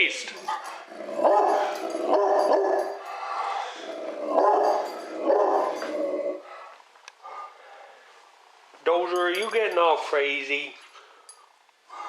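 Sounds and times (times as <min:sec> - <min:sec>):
dog barking: 0:01.2 - 0:03.0, 0:04.4 - 0:05.8.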